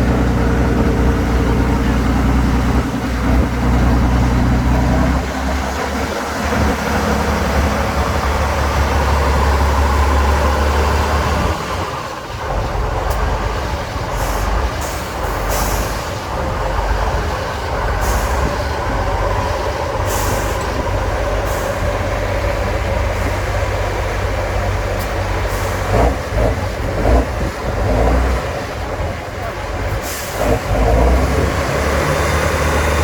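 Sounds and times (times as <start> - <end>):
truck diesel engine running: 0.0 - 33.0
air brake hisses: 14.2 - 16.2, 18.0 - 18.6, 20.0 - 20.8, 29.9 - 30.4.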